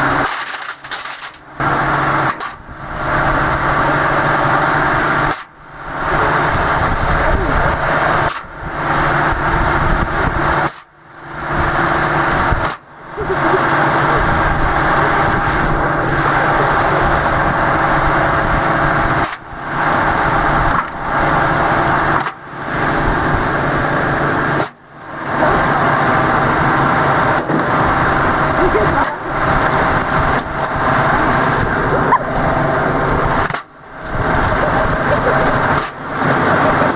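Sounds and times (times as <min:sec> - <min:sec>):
motor whining: 0:25.3 - 0:36.9.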